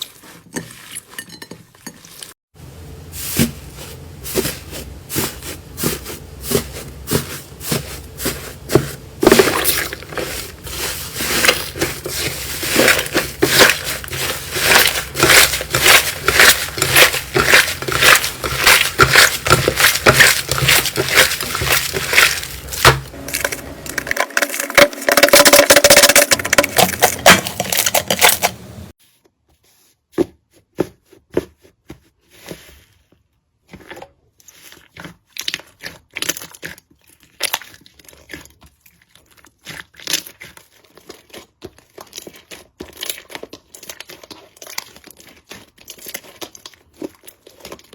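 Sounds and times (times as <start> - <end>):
slime crackling and popping: 8.2 - 28.7.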